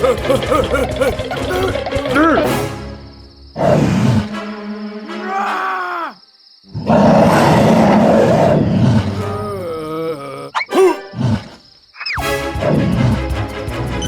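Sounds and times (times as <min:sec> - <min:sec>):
cartoon groans and grunts: 0:00.0 - 0:02.5, 0:05.2 - 0:06.2, 0:08.9 - 0:11.2
background music: 0:00.0 - 0:05.8, 0:10.7 - 0:11.4, 0:12.2 - 0:14.0
rough growling outburst: 0:05.2 - 0:11.6.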